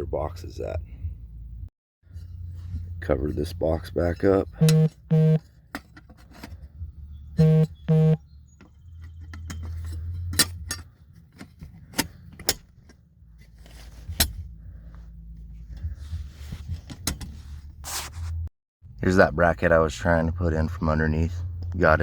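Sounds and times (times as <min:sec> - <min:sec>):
short electronic beeps: 0:04.6 - 0:05.4, 0:07.4 - 0:08.2.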